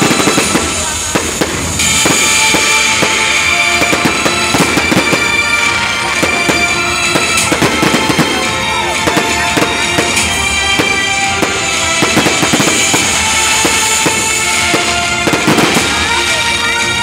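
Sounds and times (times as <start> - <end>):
fireworks bangs and crackles: 0.0 - 17.0
music playing: 0.0 - 17.0.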